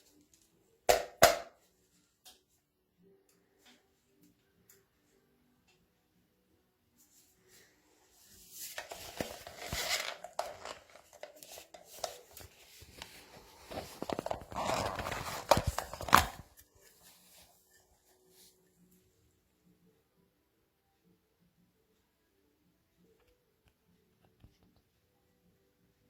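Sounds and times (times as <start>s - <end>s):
rustling and scraping: 7.0s - 18.6s.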